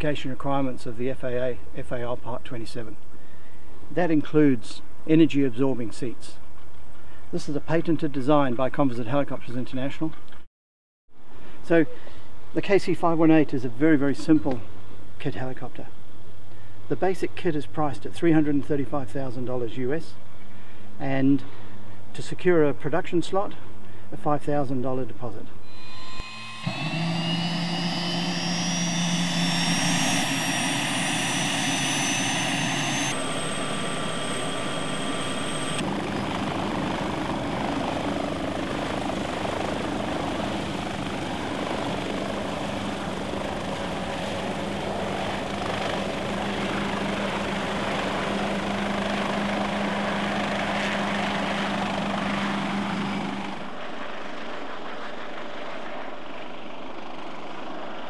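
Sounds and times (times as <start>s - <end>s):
rising engine whine: 25.6s - 54.0s
helicopter engine and rotors: 25.6s - 58.0s.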